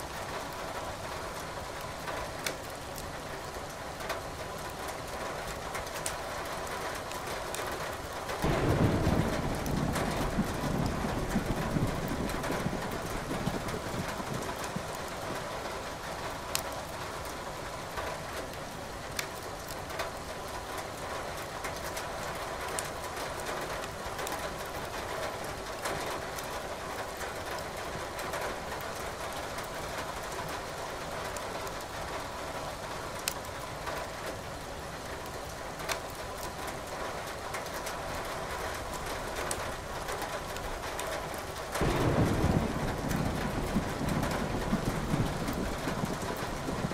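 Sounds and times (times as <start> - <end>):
steady rain falling: 0.0 - 46.9
wood fire crackling: 0.4 - 3.8, 4.4 - 20.5, 33.1 - 38.0, 38.7 - 46.9
low roll of thunder: 8.4 - 15.7, 41.8 - 46.9.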